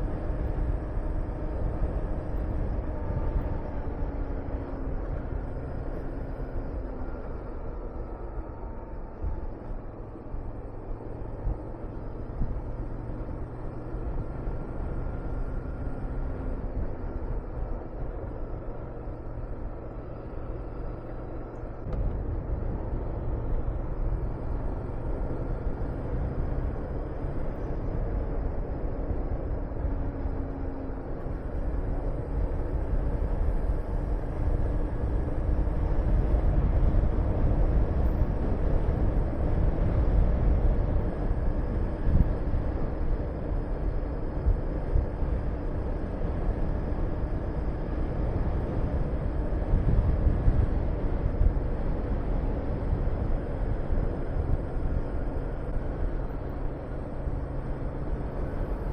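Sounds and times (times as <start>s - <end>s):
wind rushing over microphone: 21.8s - 58.9s.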